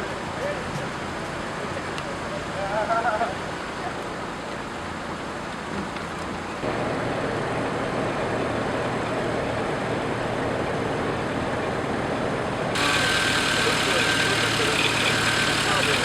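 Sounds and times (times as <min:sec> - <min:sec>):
road noise: 0:00.0 - 0:16.0
bright hiss: 0:12.8 - 0:16.0
car engine driving: 0:12.8 - 0:16.0.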